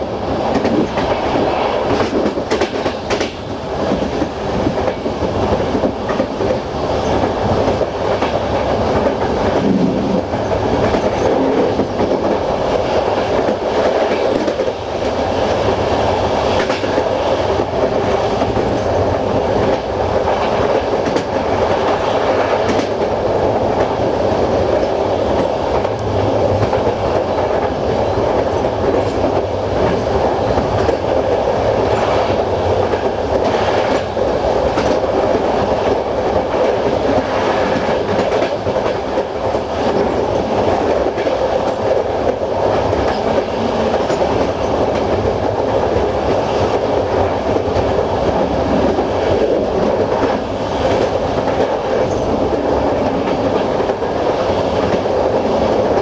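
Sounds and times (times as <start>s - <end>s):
clickety-clack of rail joints: 0.0s - 56.0s
train wheels rumbling on rail: 0.0s - 56.0s.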